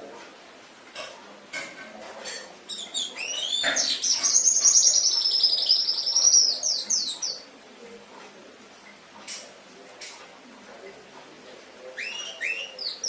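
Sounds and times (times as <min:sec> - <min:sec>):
canary singing: 0:02.7 - 0:07.5, 0:11.8 - 0:13.0.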